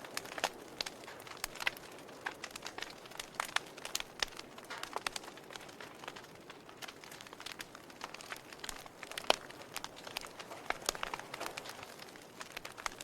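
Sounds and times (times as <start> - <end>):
soft fire hiss: 0.0 - 13.0
wood fire crackling and popping: 0.0 - 13.0.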